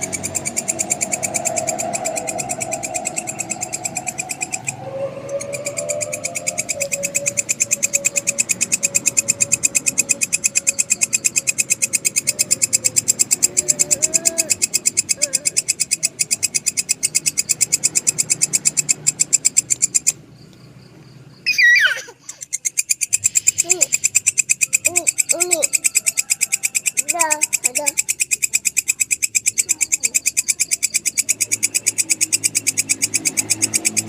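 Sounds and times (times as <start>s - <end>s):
faint wavering tone: 0.0s - 13.6s
grasshopper stridulating: 0.0s - 34.0s.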